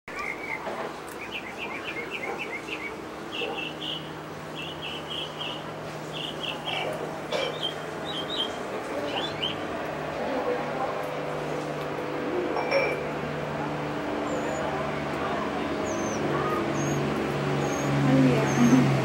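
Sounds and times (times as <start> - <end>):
small birds chirping: 0.1 - 9.7, 14.0 - 19.0
steady low hum: 0.1 - 19.0.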